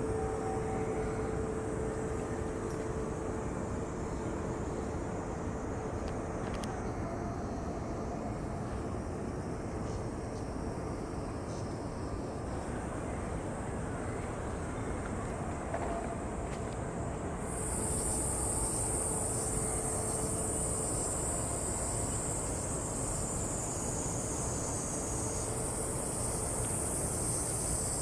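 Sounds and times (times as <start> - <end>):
cicada drone: 0.0 - 28.0.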